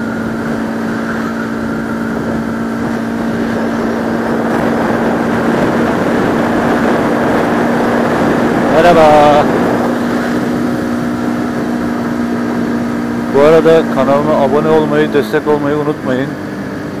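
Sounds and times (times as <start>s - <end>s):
motorcycle engine cruising: 0.0s - 17.0s
wind rushing over microphone: 0.0s - 17.0s.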